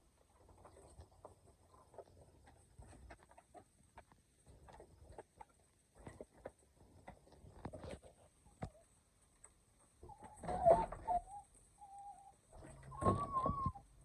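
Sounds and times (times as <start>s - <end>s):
chickens clucking: 9.8s - 13.8s.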